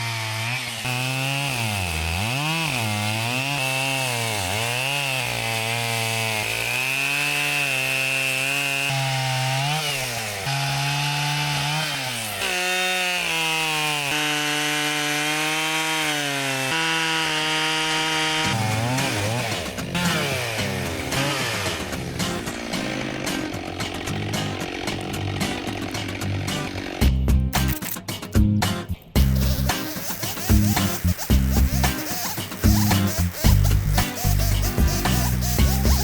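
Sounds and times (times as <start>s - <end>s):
chainsaw cutting wood: 0.0s - 28.0s, 29.2s - 36.0s.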